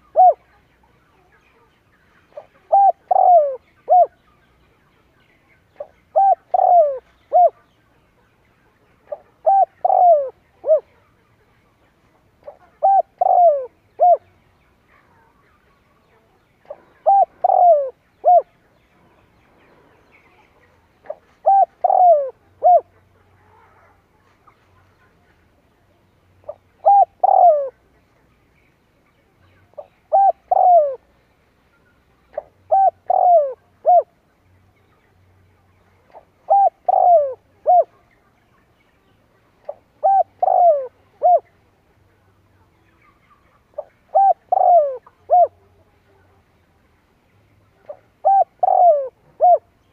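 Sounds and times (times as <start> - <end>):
dove cooing: 0.0 - 0.6, 2.3 - 4.2, 5.8 - 7.6, 9.1 - 11.0, 12.4 - 14.3, 16.7 - 18.5, 21.0 - 24.0, 26.4 - 27.9, 29.8 - 31.1, 32.4 - 34.2, 36.1 - 38.0, 39.7 - 41.6, 43.8 - 45.8, 47.9 - 49.7.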